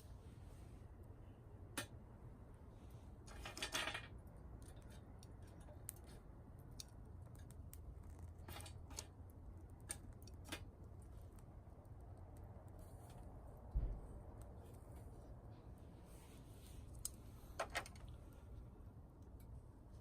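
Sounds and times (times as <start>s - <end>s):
twigs crackling and snapping: 4.5s - 13.5s.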